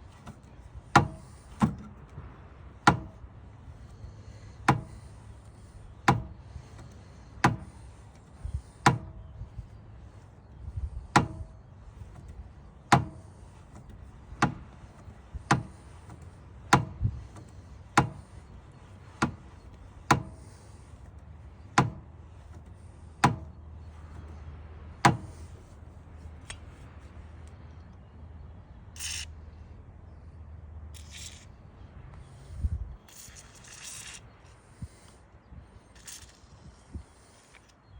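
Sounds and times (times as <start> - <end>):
sharp metallic knocks: 0.2 - 2.0, 2.8 - 3.2, 4.6 - 5.1, 6.0 - 7.8, 8.8 - 9.2, 11.1 - 11.5, 12.1 - 18.4, 19.0 - 20.7, 21.6 - 24.2, 25.0 - 25.6
short hisses: 29.0 - 29.4.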